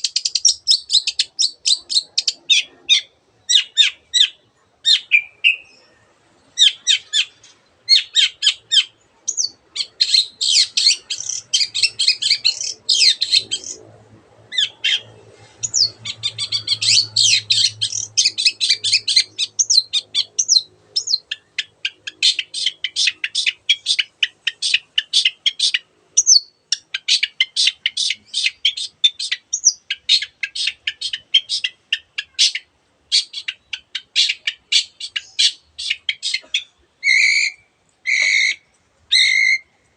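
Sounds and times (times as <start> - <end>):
bird singing high chattering notes: 6.6 - 13.8, 14.5 - 39.7.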